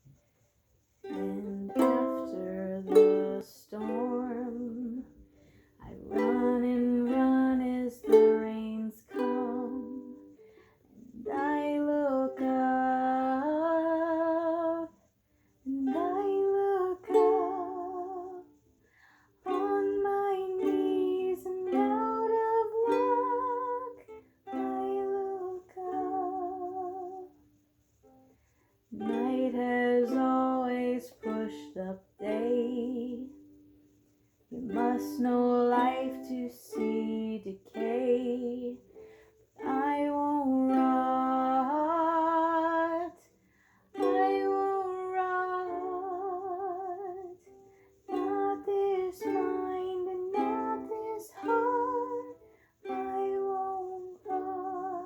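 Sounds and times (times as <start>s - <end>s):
ukulele strumming: 1.0s - 15.0s, 15.7s - 18.6s, 19.4s - 27.4s, 28.0s - 55.0s.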